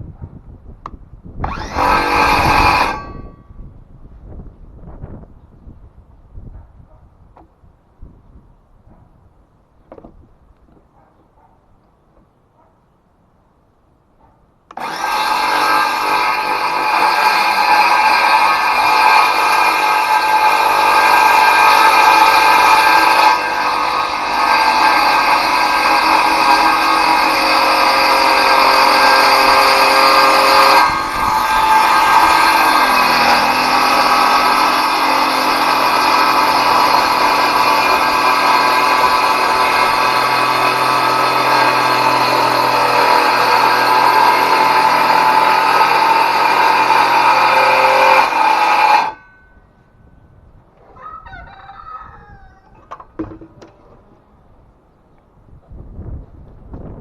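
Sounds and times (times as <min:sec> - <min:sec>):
circular saw cutting wood: 0:01.4 - 0:03.4, 0:14.7 - 0:49.5.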